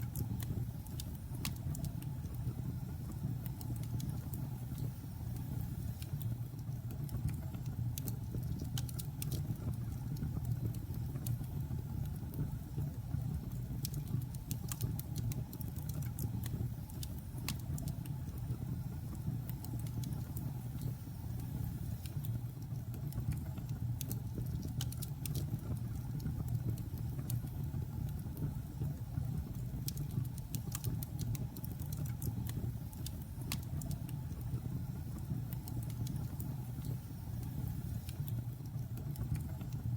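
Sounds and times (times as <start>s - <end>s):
fire rumbling in fireplace: 0.0s - 39.9s.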